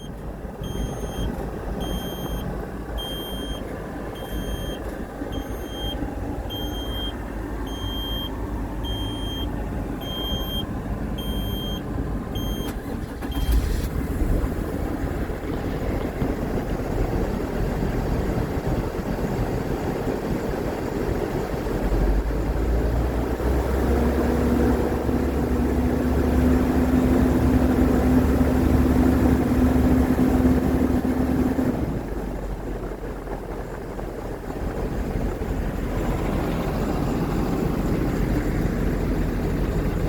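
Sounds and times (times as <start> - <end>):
electronic warning beeps: 0.0 - 11.8, 12.4 - 13.5
diesel truck engine rumbling: 0.0 - 40.0.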